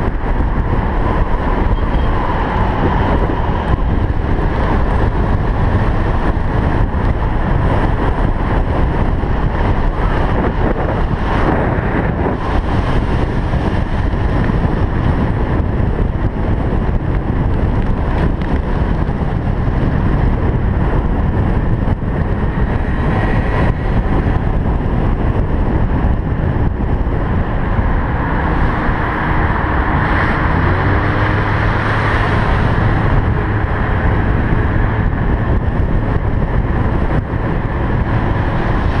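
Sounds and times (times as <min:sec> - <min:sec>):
low engine hum: 0:00.0 - 0:39.0
wind on microphone: 0:00.0 - 0:39.0
cars driving past: 0:27.6 - 0:35.4.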